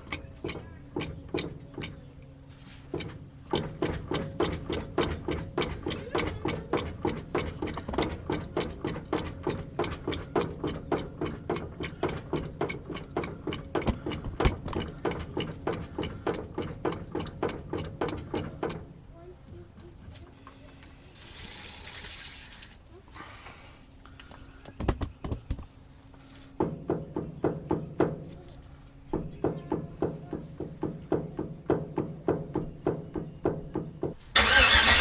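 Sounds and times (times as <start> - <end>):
rhythmic mechanical ticking: 0.0 - 2.0, 3.0 - 18.9, 34.4 - 35.0.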